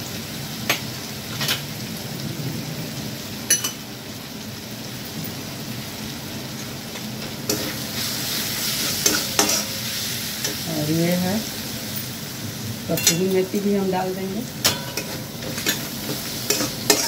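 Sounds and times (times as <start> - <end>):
masala sizzling in oil: 0.0 - 17.0
metal spatula stirring in pan: 8.6 - 10.6, 14.6 - 17.0.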